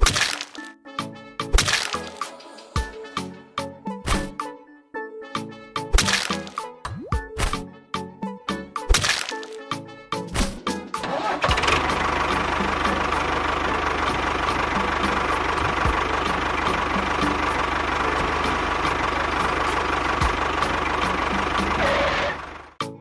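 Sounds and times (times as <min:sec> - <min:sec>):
small engine running: 0:00.0 - 0:00.7, 0:11.0 - 0:22.8.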